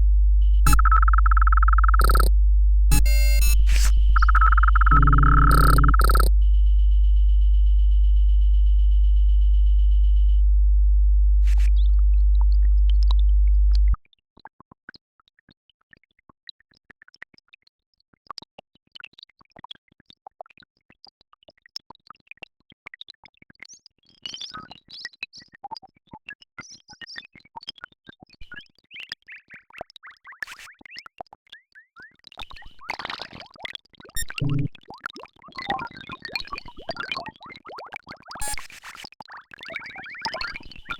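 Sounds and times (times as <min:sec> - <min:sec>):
synthesized low drone: 0:00.0 - 0:14.0
clicks and short blips: 0:00.4 - 0:02.3, 0:02.9 - 0:06.3, 0:34.2 - 0:34.7
high steady tone: 0:00.4 - 0:02.3, 0:02.9 - 0:06.8.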